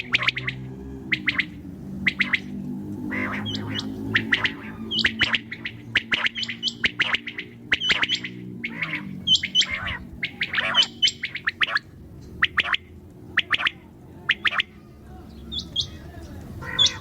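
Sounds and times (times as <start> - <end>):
low steady drone: 0.0 - 15.5
quail chirping: 0.0 - 17.0.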